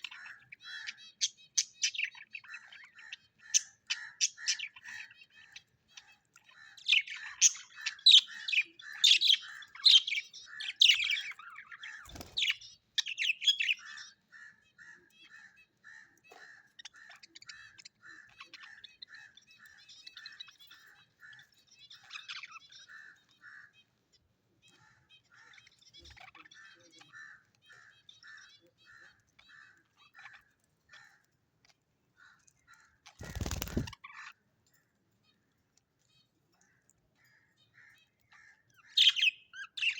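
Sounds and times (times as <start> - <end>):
birds chirping and squawking: 0.0 - 39.9
repeated short bird notes: 6.0 - 14.2, 32.4 - 34.4.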